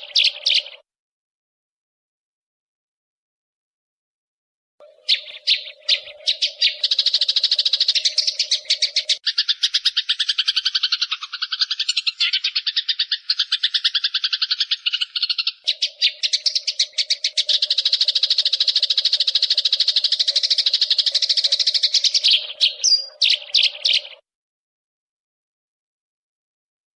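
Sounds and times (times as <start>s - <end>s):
sparrows chattering harsh chirps: 0.0s - 0.8s, 4.8s - 24.2s.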